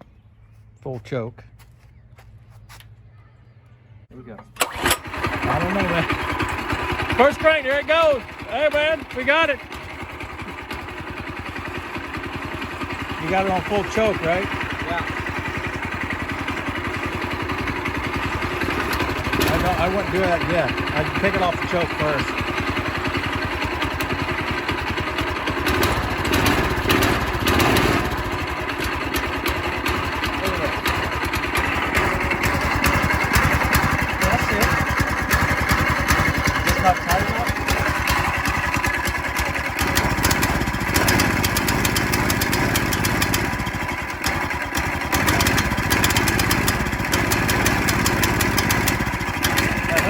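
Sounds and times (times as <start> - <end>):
small engine running: 4.6 - 50.0.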